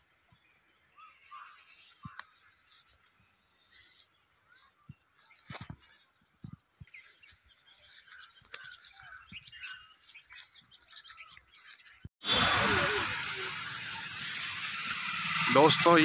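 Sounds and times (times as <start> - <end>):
small birds chirping: 0.0 - 12.1
loud rushing noise: 12.2 - 16.0.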